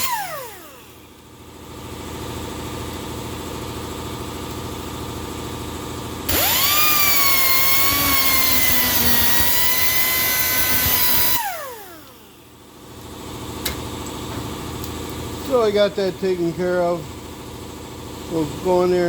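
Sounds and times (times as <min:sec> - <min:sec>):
cut-off wheel cutting steel: 0:00.0 - 0:01.1, 0:06.3 - 0:12.3.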